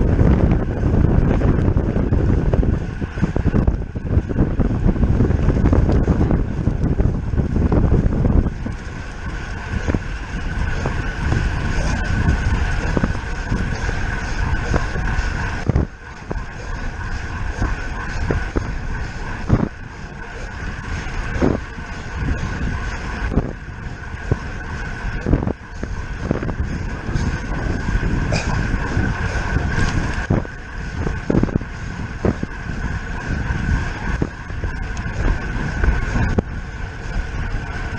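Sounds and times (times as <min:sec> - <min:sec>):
thin whine: 0:00.0 - 0:37.9
wind rushing over microphone: 0:00.0 - 0:37.9.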